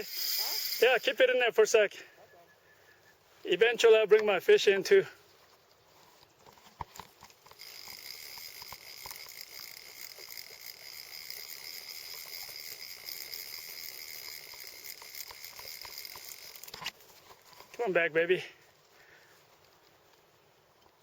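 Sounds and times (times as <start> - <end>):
small reel clicks: 0.0 - 1.3, 5.4 - 17.9
fishing reel drag buzzing: 0.0 - 1.4, 7.0 - 17.0.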